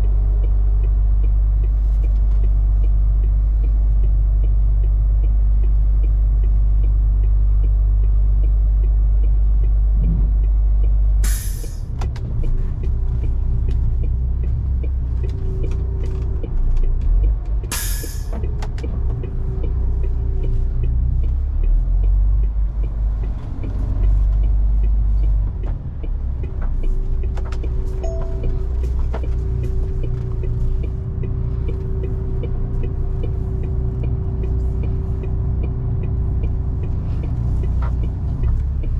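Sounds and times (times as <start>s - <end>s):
truck diesel engine drone: 0.0s - 38.9s
loud air hisses: 11.2s - 11.8s, 17.8s - 18.3s.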